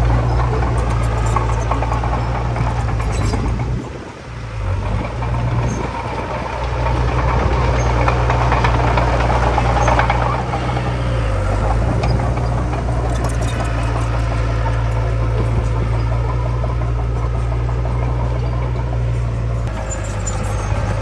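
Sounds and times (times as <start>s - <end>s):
diesel engine droning: 0.0s - 21.0s
machine clattering rattle: 4.8s - 21.0s.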